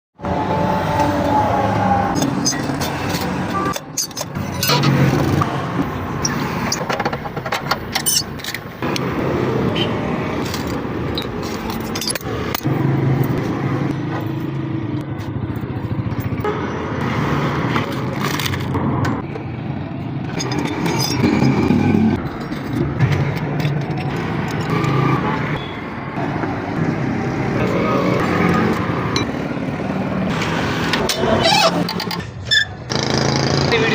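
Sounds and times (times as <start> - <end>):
traffic hum: 0.2 - 33.9
tools clinking and scraping metal: 2.1 - 5.5, 6.1 - 8.7, 10.4 - 13.4, 20.2 - 25.6.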